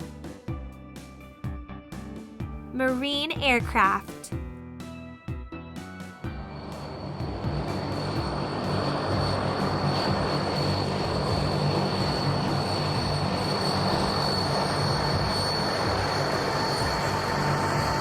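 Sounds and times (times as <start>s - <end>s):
aircraft engines roaring: 6.3s - 18.0s
high-pitched engine whine: 6.3s - 18.0s.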